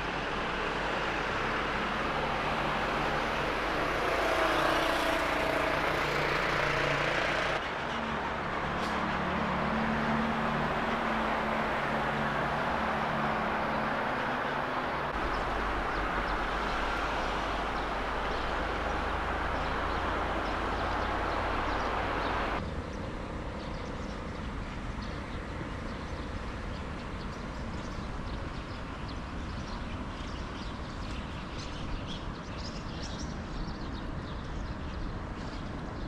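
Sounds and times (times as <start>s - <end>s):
car road and engine noise: 0.0s - 36.0s.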